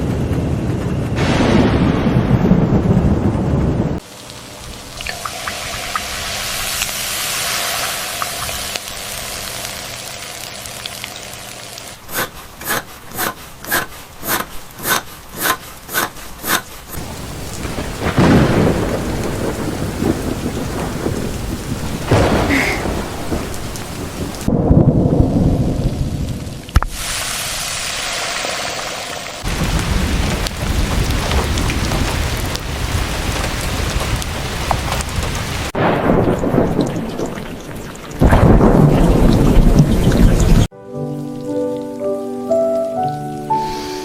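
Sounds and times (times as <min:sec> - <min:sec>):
thunder rumbling: 0:00.0 - 0:04.0, 0:17.0 - 0:26.7, 0:29.4 - 0:40.7
steady rain: 0:02.6 - 0:44.0.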